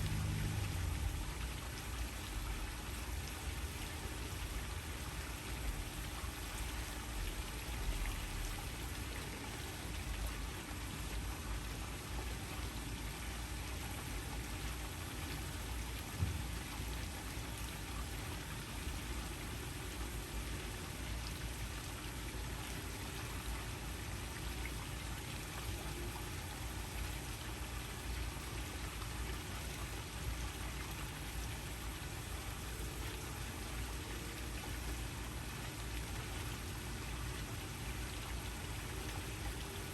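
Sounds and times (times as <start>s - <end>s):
waterfall rushing: 0.0s - 1.5s.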